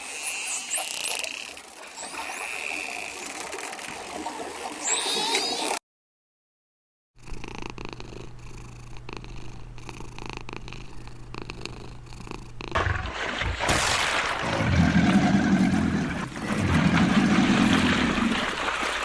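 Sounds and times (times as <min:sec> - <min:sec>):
animal purring: 0:07.2 - 0:12.8, 0:14.4 - 0:18.4.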